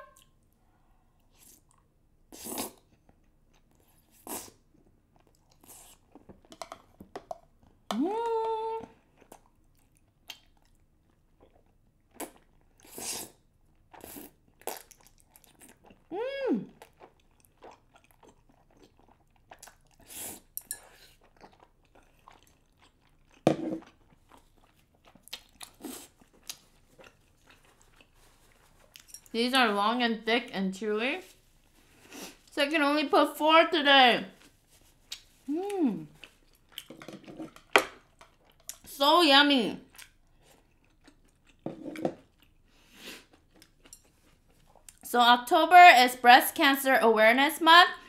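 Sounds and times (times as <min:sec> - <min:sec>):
chewing and mouth smacking: 0:09.0 - 0:16.1, 0:16.7 - 0:29.4, 0:36.1 - 0:38.9, 0:39.9 - 0:45.1
person humming: 0:35.5 - 0:36.1.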